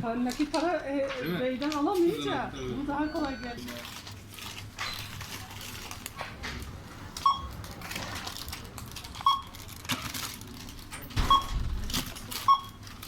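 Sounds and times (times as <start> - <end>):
barcode scanner beeps: 2.1 - 3.8, 7.2 - 7.6, 9.2 - 9.6, 11.2 - 12.9.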